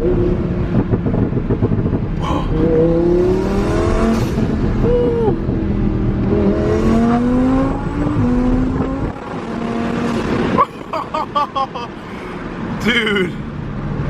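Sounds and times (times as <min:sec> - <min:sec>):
sports car accelerating hard: 0:00.0 - 0:11.2.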